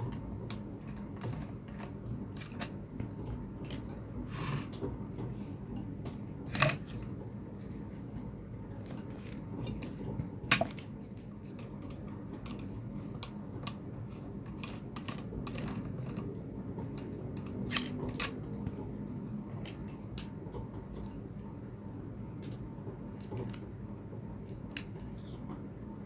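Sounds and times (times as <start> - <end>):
tools and metal parts clicking: 2.4 - 2.7, 17.4 - 18.4, 19.7 - 20.3.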